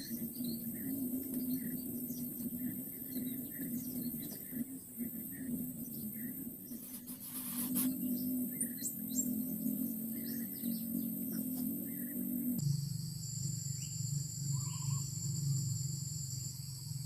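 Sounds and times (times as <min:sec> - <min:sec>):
faint bird chirps: 0:00.0 - 0:17.0
low hum: 0:00.0 - 0:17.0
steady high hiss: 0:00.0 - 0:17.0.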